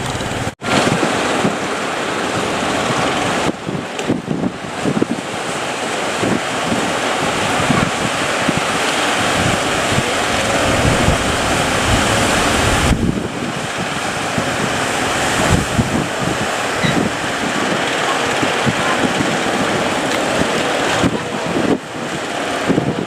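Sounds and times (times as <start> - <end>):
heavy sea surf: 0.0 - 23.0
wind buffeting microphone: 0.0 - 23.0.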